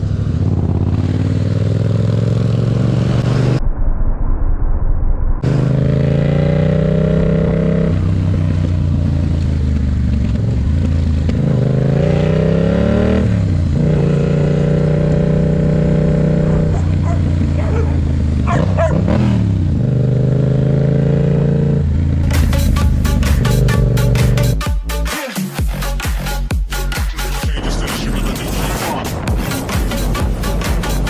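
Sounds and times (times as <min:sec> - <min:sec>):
motorcycle engine accelerating: 0:00.0 - 0:03.6, 0:05.4 - 0:24.7.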